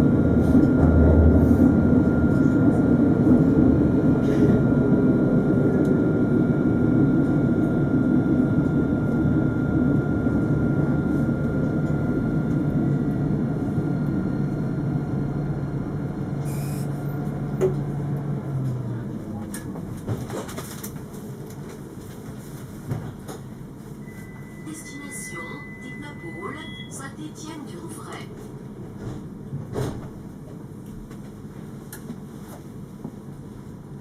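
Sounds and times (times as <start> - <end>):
low hum: 0.0 - 20.0
tram rumbling on rails: 0.0 - 34.0
thin steady whine: 7.8 - 17.2, 24.0 - 28.3
motor tone falling in pitch: 16.4 - 16.9.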